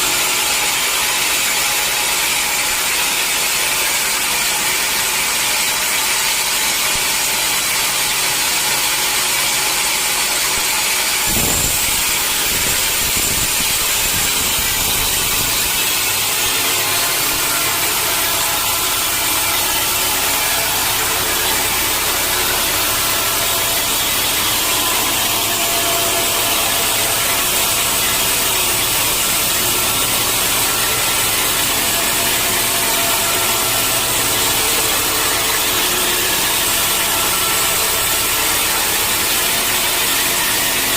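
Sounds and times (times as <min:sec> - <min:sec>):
saw cutting through wood: 0:00.0 - 0:40.9
steady low hum: 0:11.2 - 0:40.1.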